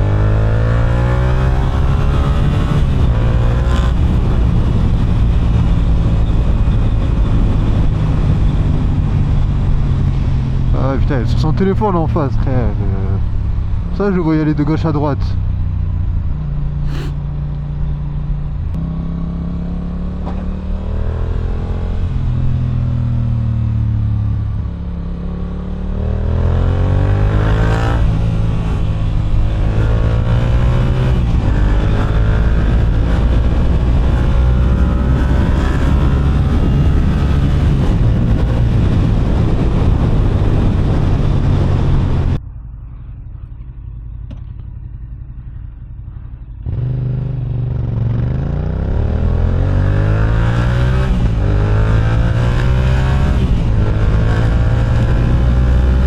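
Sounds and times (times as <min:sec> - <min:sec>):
motorcycle engine revving: 0:00.0 - 0:14.0, 0:14.9 - 0:56.0.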